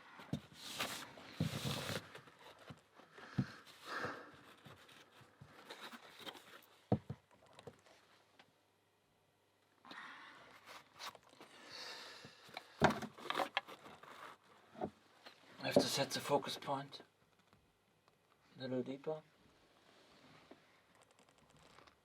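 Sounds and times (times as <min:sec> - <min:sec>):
rubber gloves rustling: 0:00.4 - 0:08.3.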